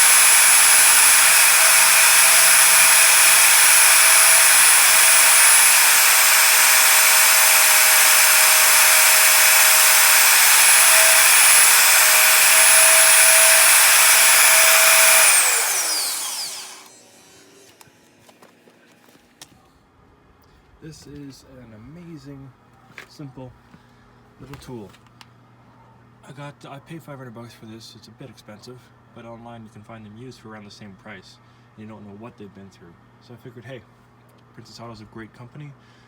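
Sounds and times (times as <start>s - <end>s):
power tool motor whining: 0.0s - 18.5s.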